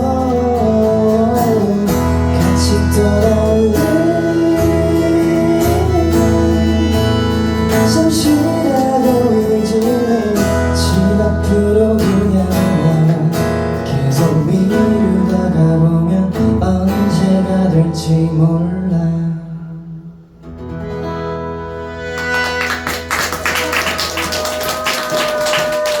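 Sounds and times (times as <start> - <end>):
person singing: 0.0 - 19.2
acoustic guitar: 0.0 - 26.0.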